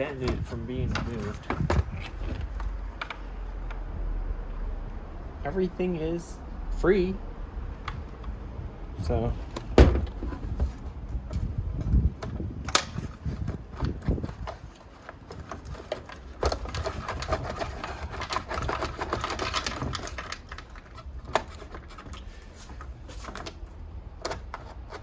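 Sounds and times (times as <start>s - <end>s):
metal and plastic parts rattling: 0.0s - 3.4s, 9.2s - 25.0s.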